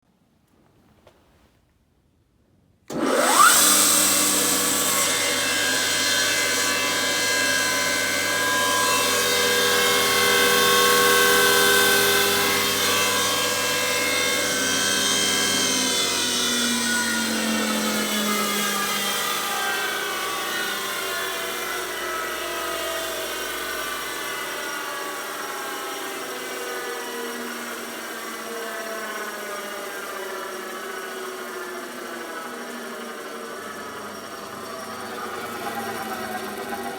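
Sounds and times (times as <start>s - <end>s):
spindle moulder motor whine: 2.9s - 36.9s.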